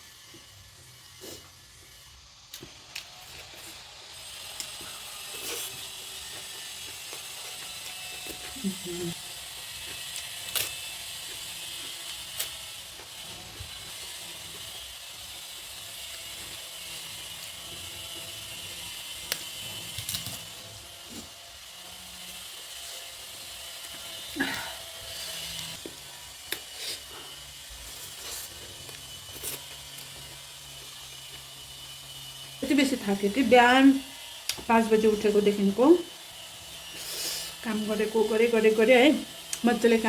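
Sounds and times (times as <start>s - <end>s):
chewing crisp food: 2.5s - 13.6s, 25.6s - 31.5s.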